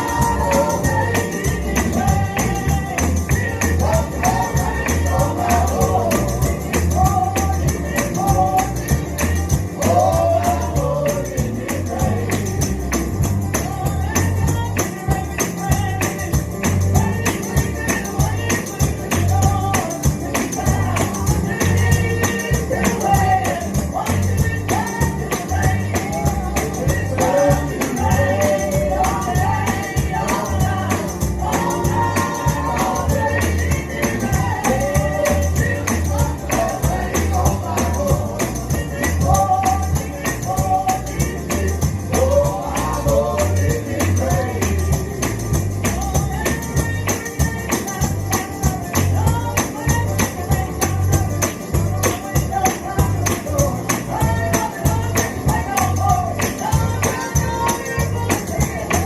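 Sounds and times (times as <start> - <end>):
person singing gospel: 0.0 - 59.0
tambourine shaken: 0.0 - 59.0.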